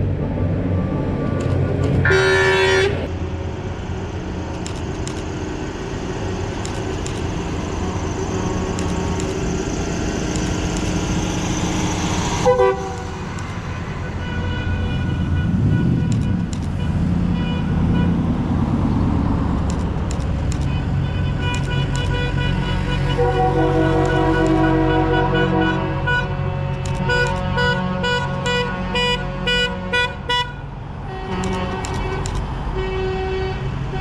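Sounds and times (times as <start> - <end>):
truck engines running: 0.0 - 34.0
truck horn blast: 2.0 - 3.1, 12.4 - 13.3, 13.9 - 18.3, 20.7 - 34.0.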